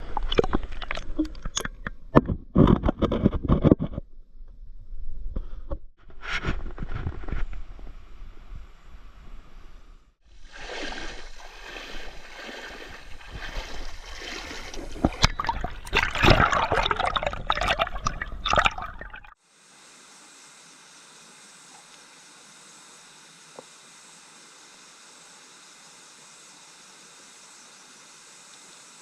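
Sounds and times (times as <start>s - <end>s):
stream water rushing and splashing: 10.4s - 19.4s.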